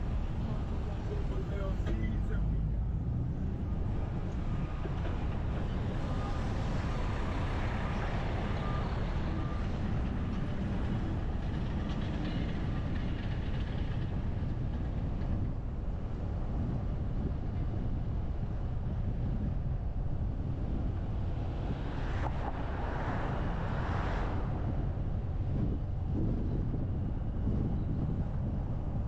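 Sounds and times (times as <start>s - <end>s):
car driving road rumble: 0.0s - 29.0s.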